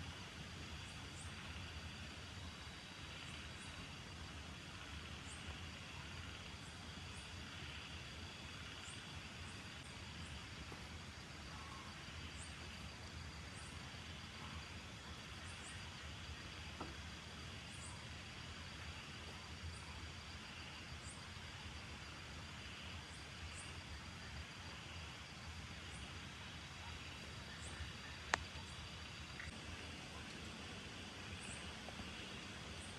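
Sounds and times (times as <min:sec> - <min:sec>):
rain hissing in woods: 0:00.0 - 0:32.9
faint click: 0:28.3 - 0:28.5.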